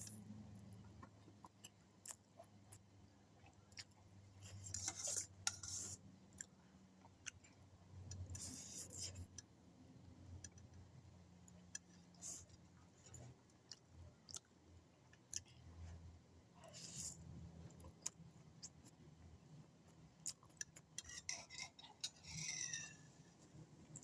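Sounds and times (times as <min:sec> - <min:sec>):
chewing: 0:00.7 - 0:09.4, 0:11.5 - 0:15.9, 0:19.9 - 0:23.0.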